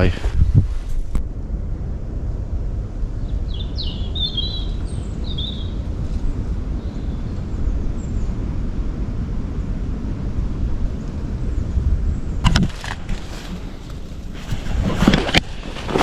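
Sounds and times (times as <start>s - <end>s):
low rumble of wind: 0.0s - 16.0s
songbird singing: 3.1s - 8.6s.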